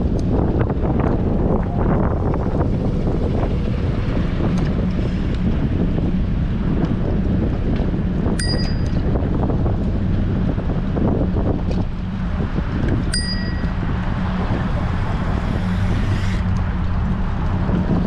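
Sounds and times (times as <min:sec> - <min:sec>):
wind buffeting microphone: 0:00.0 - 0:18.0
bicycle bell ringing: 0:08.4 - 0:09.1, 0:13.1 - 0:13.9.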